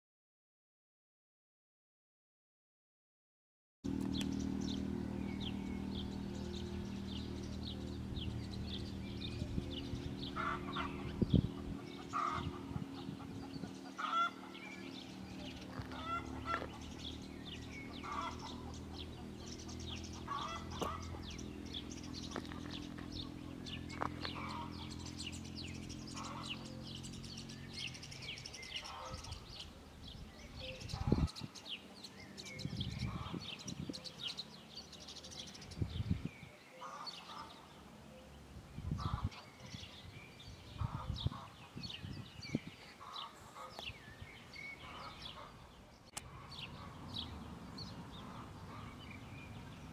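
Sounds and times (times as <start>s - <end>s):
low hum: 3.9s - 28.5s
birds calling: 3.9s - 49.9s.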